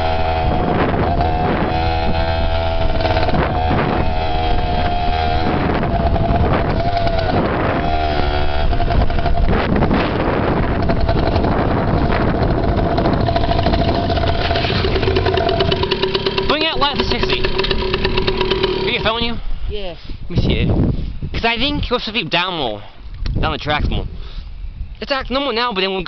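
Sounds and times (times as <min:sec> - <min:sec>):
dirt bike engine revving: 0:00.0 - 0:19.5.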